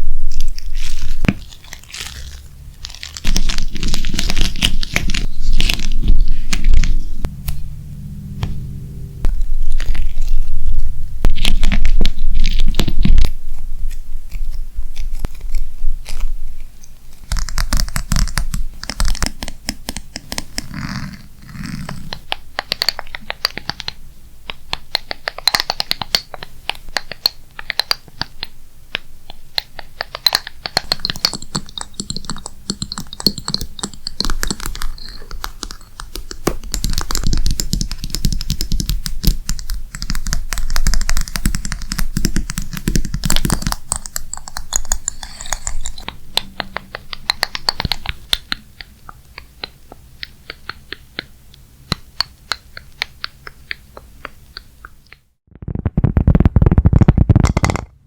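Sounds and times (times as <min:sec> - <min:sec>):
low rubbing rumble: 0:00.0 - 0:12.4.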